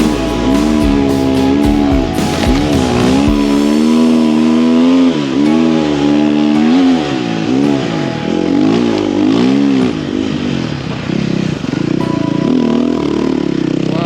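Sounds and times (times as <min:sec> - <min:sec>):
snow bike engine revving: 0:00.0 - 0:06.8.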